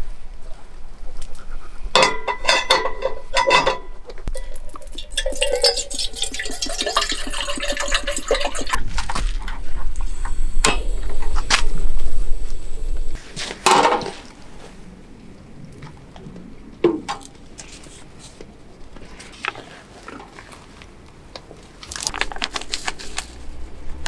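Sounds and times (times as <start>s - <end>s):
sharp metal clanks: 2.0s - 6.2s, 8.1s - 14.1s
metal cookware clinking: 2.0s - 8.8s, 9.6s - 14.2s.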